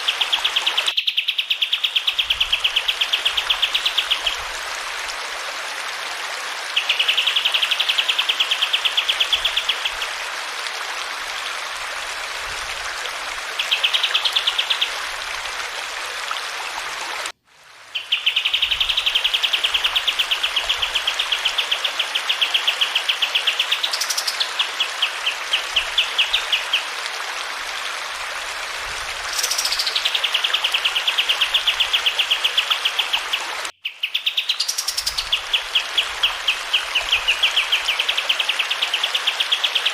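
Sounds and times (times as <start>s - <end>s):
running water rushing: 1.9s - 33.7s, 34.5s - 39.9s.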